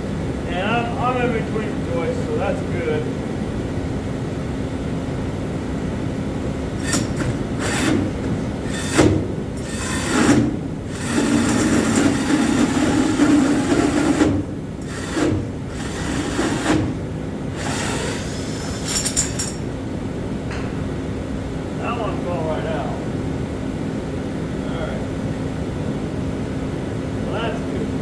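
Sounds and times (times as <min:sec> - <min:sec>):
constant low hum: 0:00.0 - 0:28.0
power tool cutting wood: 0:08.7 - 0:19.0.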